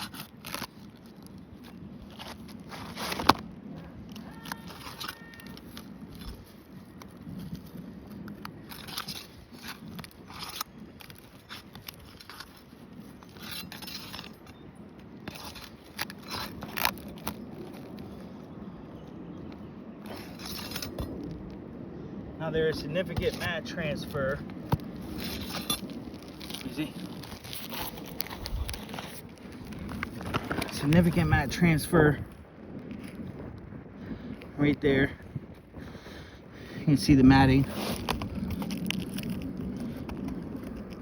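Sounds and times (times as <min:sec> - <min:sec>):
sharp cracks of shingles: 0:00.0 - 0:07.6, 0:08.2 - 0:14.6, 0:15.2 - 0:18.1
shingles crackling and tearing: 0:00.0 - 0:18.4, 0:20.0 - 0:21.6, 0:22.7 - 0:36.3, 0:36.9 - 0:41.0.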